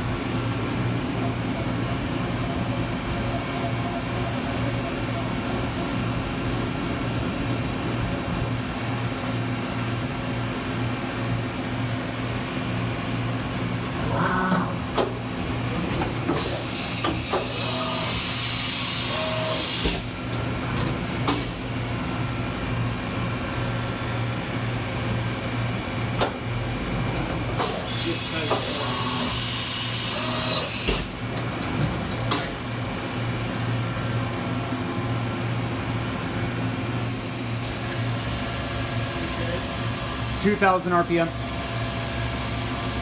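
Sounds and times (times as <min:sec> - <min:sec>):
milling machine humming: 0:10.8 - 0:36.4.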